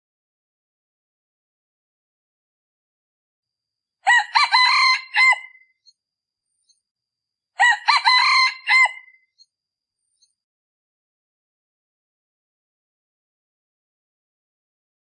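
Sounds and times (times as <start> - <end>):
rooster crowing: 4.0 - 5.6, 7.6 - 9.2.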